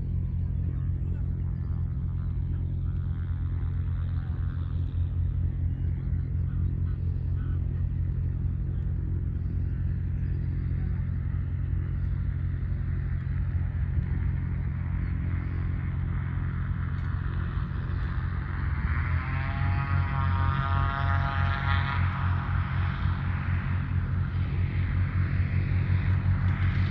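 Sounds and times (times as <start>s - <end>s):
engine running with deep rumble: 0.0s - 26.9s.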